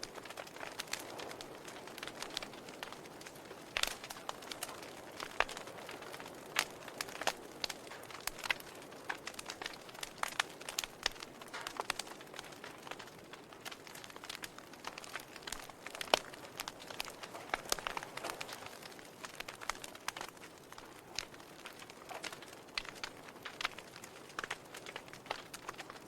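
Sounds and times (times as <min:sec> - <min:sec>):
fire crackling and popping: 0:00.0 - 0:26.0
soft steady hiss: 0:00.0 - 0:26.0.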